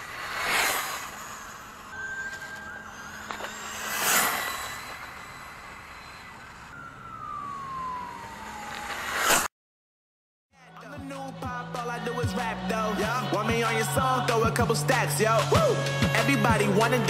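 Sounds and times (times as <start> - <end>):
rc truck motor whining: 0.0 - 9.4.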